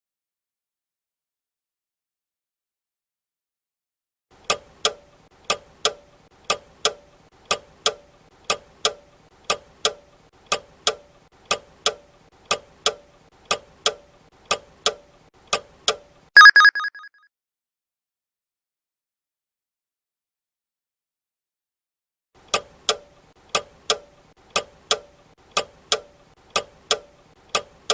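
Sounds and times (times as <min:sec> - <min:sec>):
alarm bell ringing: 0:16.4 - 0:17.0.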